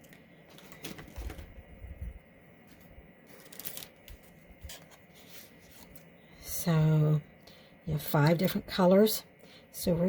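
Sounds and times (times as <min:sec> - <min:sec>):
paper rustling and clicking: 0:00.0 - 0:01.5, 0:02.7 - 0:06.0.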